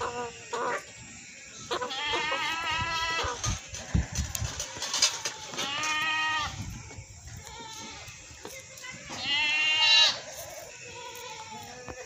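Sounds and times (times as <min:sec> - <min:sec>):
goat bleating: 0:01.7 - 0:06.6, 0:07.3 - 0:12.0.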